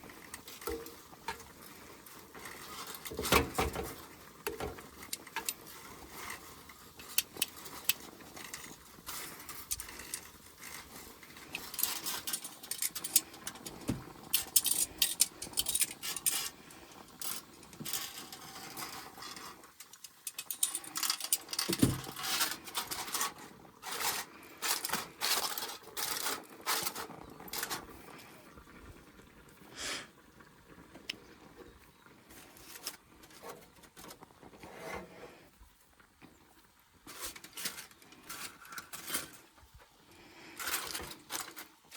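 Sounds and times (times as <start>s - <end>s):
rustling: 0.0s - 28.8s, 32.1s - 41.9s
cookware clinking and scraping: 2.4s - 16.6s, 17.2s - 27.9s.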